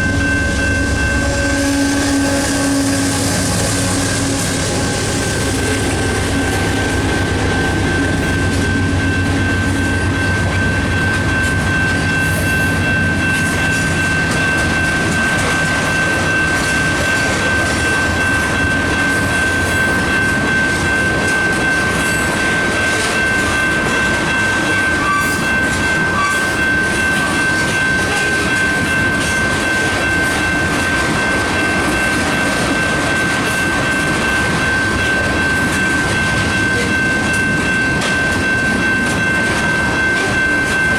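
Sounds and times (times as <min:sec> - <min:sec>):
high-pitched squeal: 0:00.0 - 0:18.6
diesel locomotive drone: 0:00.0 - 0:40.9
freight train rolling past: 0:00.0 - 0:40.9.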